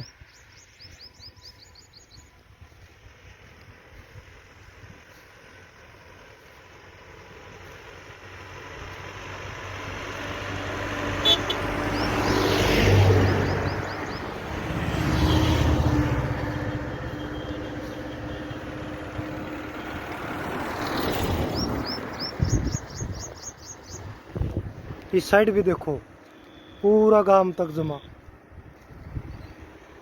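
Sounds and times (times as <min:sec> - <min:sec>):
bird chirps: 0:00.0 - 0:02.4, 0:11.8 - 0:14.4, 0:21.3 - 0:24.2, 0:26.3 - 0:27.0
vehicle passing on road: 0:00.0 - 0:30.0.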